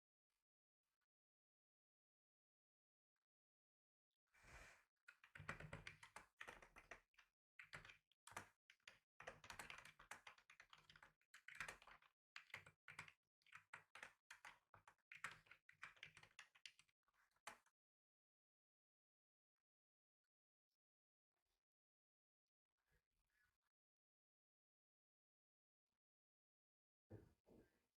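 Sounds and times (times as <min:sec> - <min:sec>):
typing on computer keyboard: 0:05.1 - 0:17.6.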